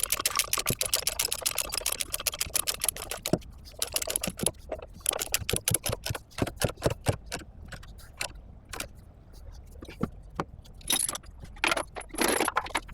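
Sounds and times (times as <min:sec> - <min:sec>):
chain rattling and clinking: 0:10.8 - 0:12.9.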